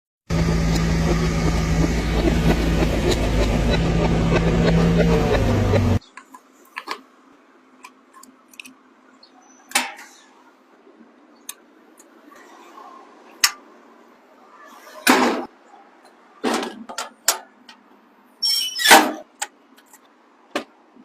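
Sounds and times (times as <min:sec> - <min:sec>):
diesel engine running: 0:00.3 - 0:06.0.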